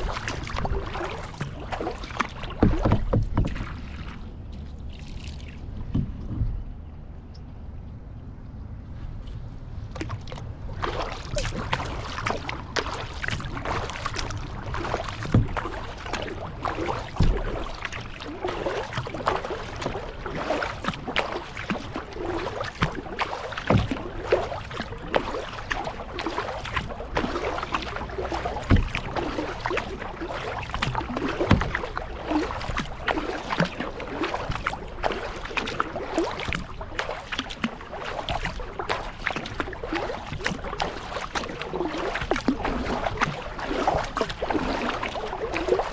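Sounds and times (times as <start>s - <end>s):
paddle splashing in water: 0.0s - 6.6s, 9.0s - 45.9s
low thumps: 2.6s - 3.8s.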